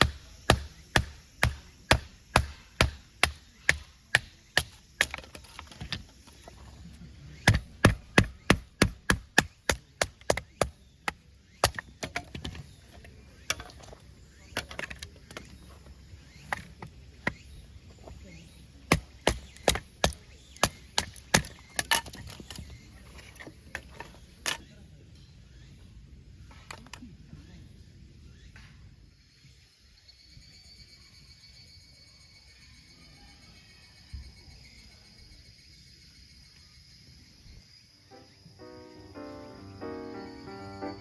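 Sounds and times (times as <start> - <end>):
firewood being chopped: 0.0 - 6.5, 7.4 - 15.6, 16.5 - 17.5, 18.9 - 24.6.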